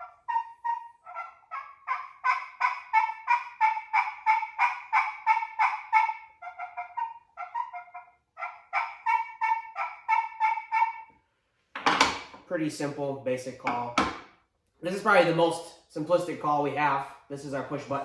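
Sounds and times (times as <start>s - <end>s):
friction turkey call yelps: 0.0s - 11.2s.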